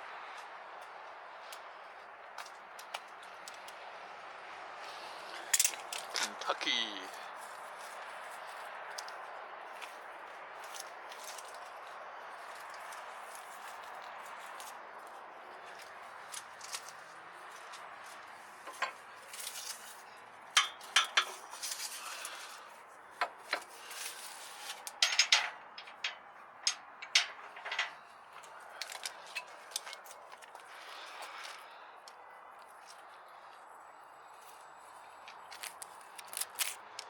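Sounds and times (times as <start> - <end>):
metallic clinks and rattles: 20.6 - 22.3, 24.9 - 28.0.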